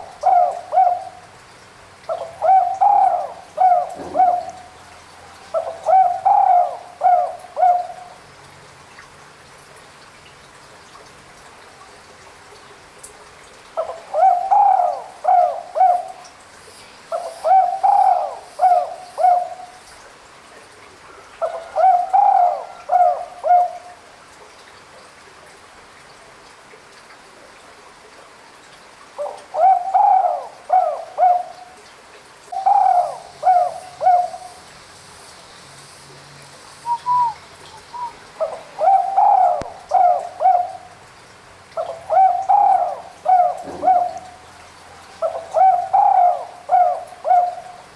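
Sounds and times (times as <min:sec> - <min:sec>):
dove cooing: 0:00.0 - 0:01.3, 0:02.1 - 0:08.2, 0:13.8 - 0:16.3, 0:17.1 - 0:19.8, 0:21.4 - 0:23.9, 0:29.2 - 0:31.7, 0:32.5 - 0:34.7, 0:36.8 - 0:41.0, 0:41.8 - 0:47.9.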